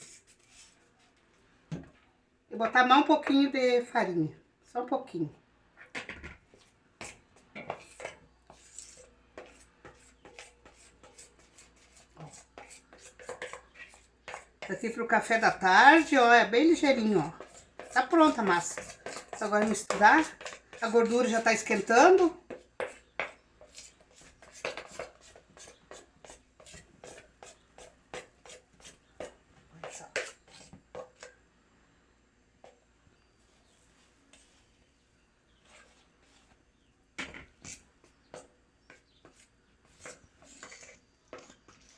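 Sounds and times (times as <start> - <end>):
spoon scraping a mixing bowl: 0.0 - 1.1, 6.5 - 31.4, 35.5 - 41.9.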